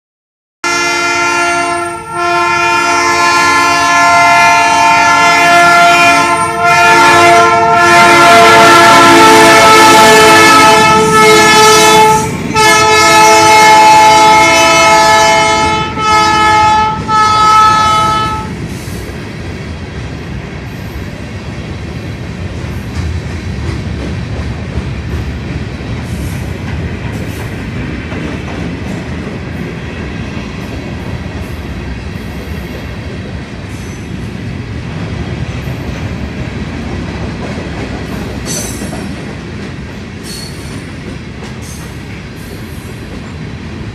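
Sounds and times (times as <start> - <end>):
locomotive air horn blasts: 0.6 - 18.6
freight cars rumbling and clattering: 18.5 - 43.9.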